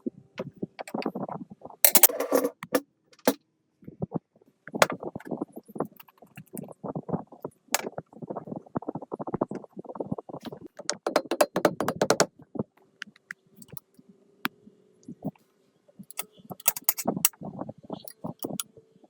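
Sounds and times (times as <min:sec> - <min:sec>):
clicks and taps on metal: 0:10.8 - 0:12.3, 0:16.1 - 0:17.2, 0:18.2 - 0:18.6.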